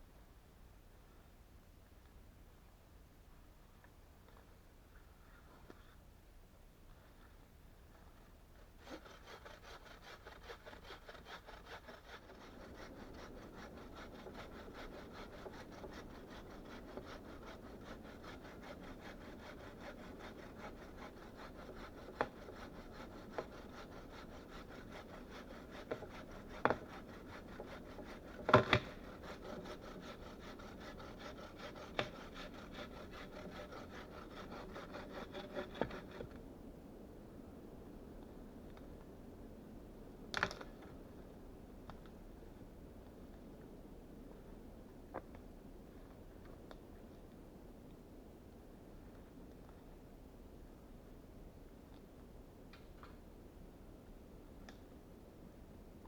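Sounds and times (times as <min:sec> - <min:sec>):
hand saw cutting wood: 0:08.6 - 0:36.4.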